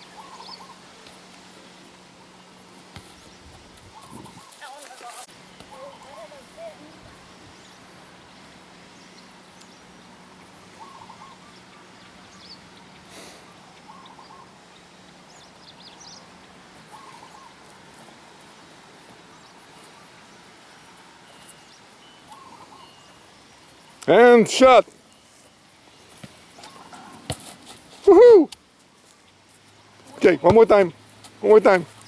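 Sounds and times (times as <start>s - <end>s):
bird warbled call: 0.0s - 0.9s, 10.7s - 12.6s, 13.2s - 14.6s, 16.9s - 17.6s, 22.2s - 23.2s
steady outdoor hiss: 0.0s - 32.0s.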